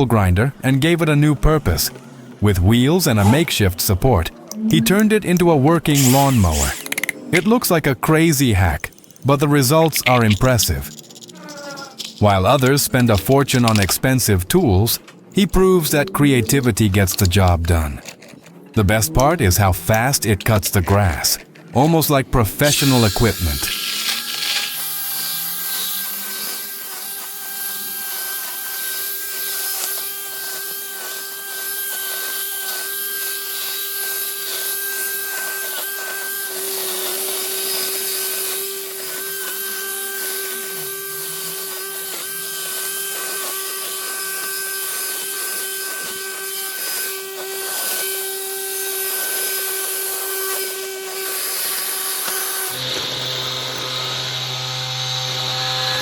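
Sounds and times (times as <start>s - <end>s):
angle grinder whining: 3.2s - 7.6s, 15.1s - 56.0s
machine humming: 49.6s - 56.0s.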